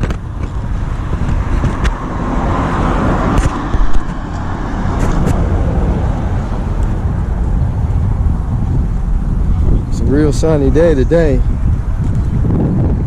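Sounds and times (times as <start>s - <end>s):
car engine running: 0.0s - 9.7s
low outdoor rumble: 0.0s - 13.0s.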